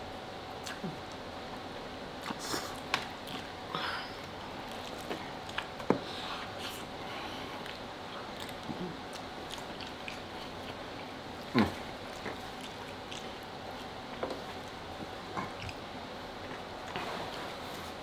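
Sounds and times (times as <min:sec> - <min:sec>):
mouth clicks and smacks: 0:00.6 - 0:01.2
food being bitten and chewed: 0:04.2 - 0:06.9, 0:07.6 - 0:15.8.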